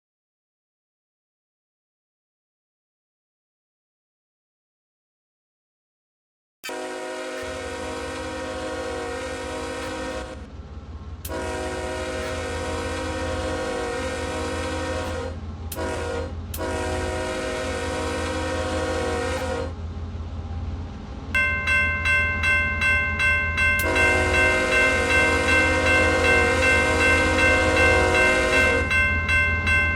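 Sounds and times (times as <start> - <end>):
locomotive horn blasts: 6.6 - 10.5, 11.3 - 19.8, 23.7 - 29.9
bell ringing: 21.4 - 29.9.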